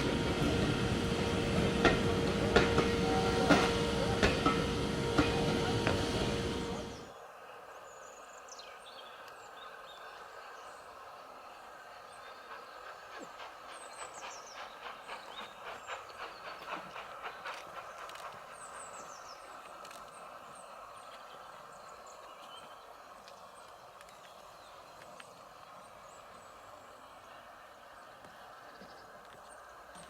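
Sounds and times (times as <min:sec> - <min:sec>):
train rumbling and clicking: 0:00.0 - 0:07.1, 0:10.1 - 0:30.0
birds chirping: 0:12.1 - 0:28.1.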